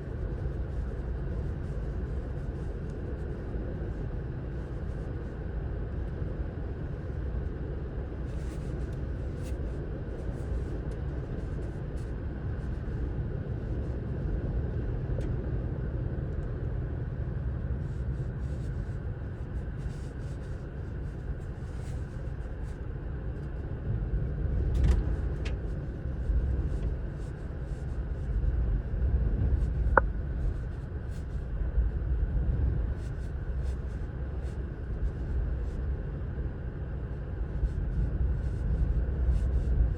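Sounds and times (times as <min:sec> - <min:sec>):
wind gusting on microphone: 0:22.8 - 0:36.0.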